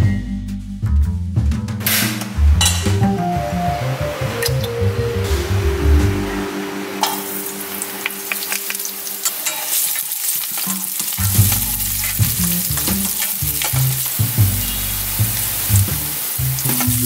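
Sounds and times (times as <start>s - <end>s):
garlic sizzling in hot oil: 7.0s - 17.0s
oil popping: 7.0s - 17.0s.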